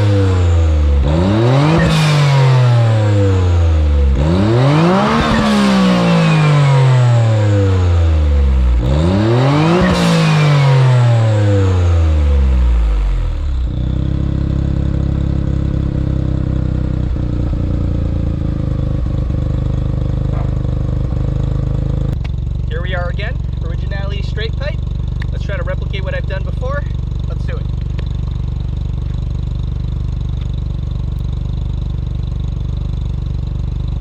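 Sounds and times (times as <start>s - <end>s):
car engine revving and idling: 0.0s - 34.0s.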